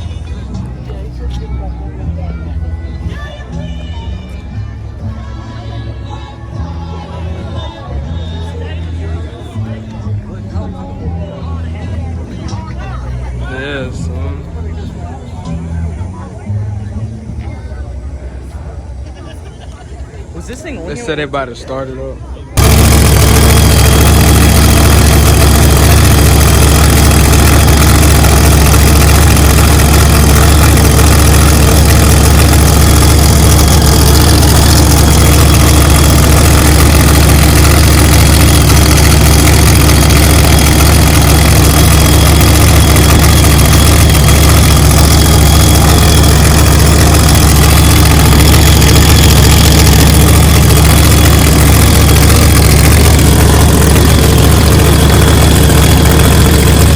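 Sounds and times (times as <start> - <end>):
car engine idling: 22.5 - 56.9.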